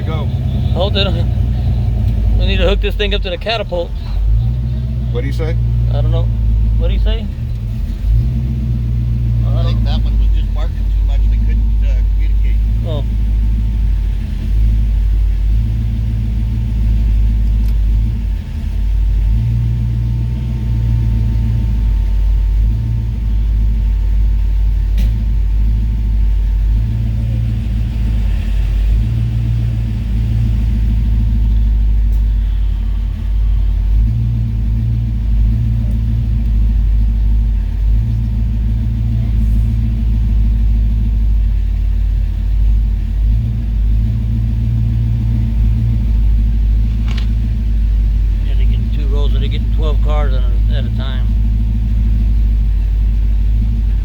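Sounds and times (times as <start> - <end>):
car engine running: 0.0 - 54.0.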